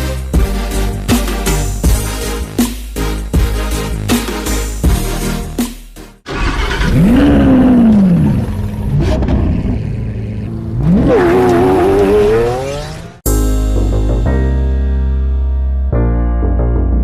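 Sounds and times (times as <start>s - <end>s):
sports car engine revving: 6.3s - 13.2s.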